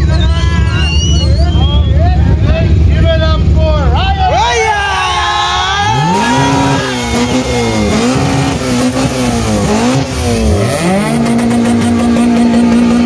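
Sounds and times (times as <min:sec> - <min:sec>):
car engine revving hard: 0:05.8 - 0:13.0.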